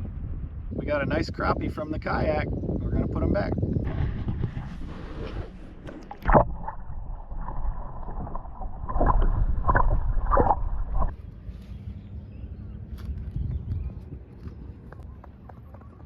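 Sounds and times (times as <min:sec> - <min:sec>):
water splashing at a kayak: 0:03.9 - 0:11.2.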